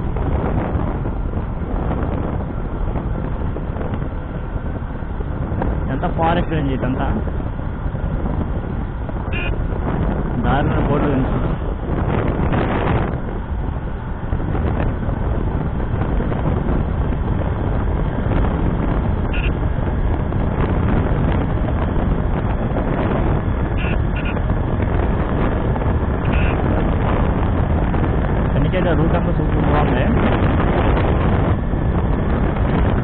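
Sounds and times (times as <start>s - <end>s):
road noise: 0.0s - 33.0s
wind buffeting microphone: 0.0s - 33.0s
motorcycle engine: 7.1s - 33.0s.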